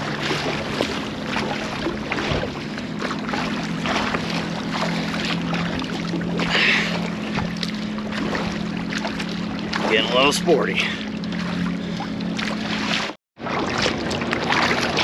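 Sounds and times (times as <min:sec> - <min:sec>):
water splashing against kayak: 0:00.0 - 0:15.0.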